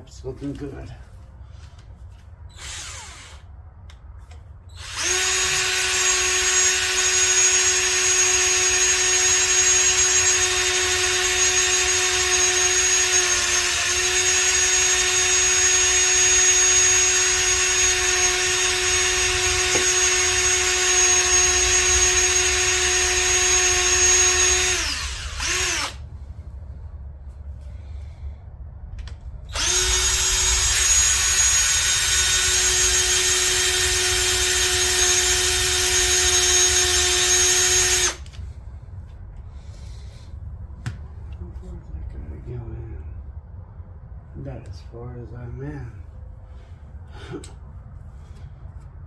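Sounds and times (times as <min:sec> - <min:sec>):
electric drill boring metal: 0:02.5 - 0:03.5, 0:04.8 - 0:26.0, 0:29.5 - 0:38.4.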